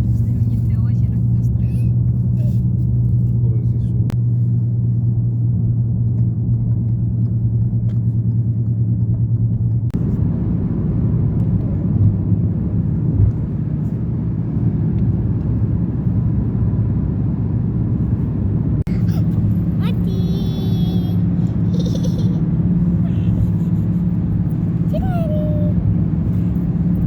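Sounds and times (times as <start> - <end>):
car engine hum: 0.0 - 27.0
road rumble: 0.0 - 27.0.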